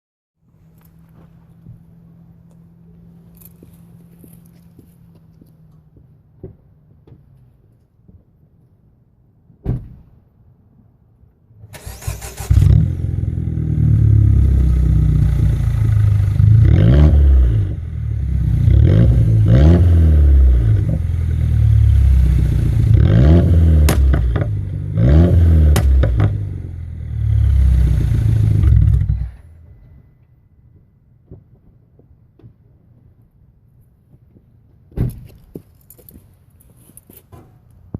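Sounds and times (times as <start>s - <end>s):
car engine starting and revving: 11.7s - 29.4s.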